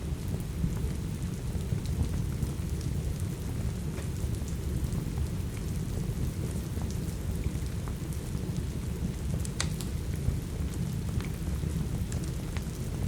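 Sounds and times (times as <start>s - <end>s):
steady rain: 0.0s - 13.0s
wood fire crackling and popping: 9.3s - 13.0s.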